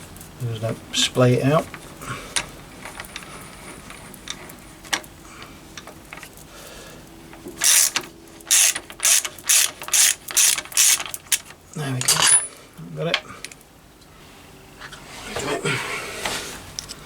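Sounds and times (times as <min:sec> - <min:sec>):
ratchet wrench clicking: 0:07.6 - 0:11.5.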